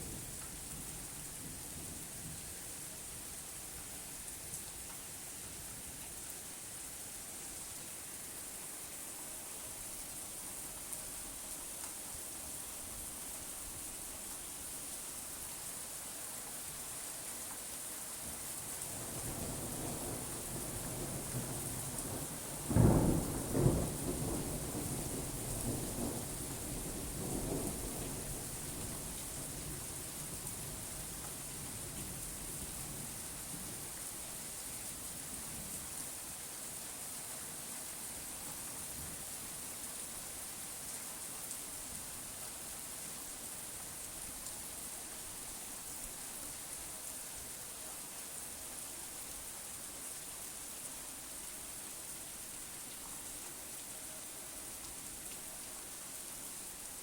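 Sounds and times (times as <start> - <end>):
steady rain: 0.0 - 57.0
raindrop ticks: 4.8 - 5.0.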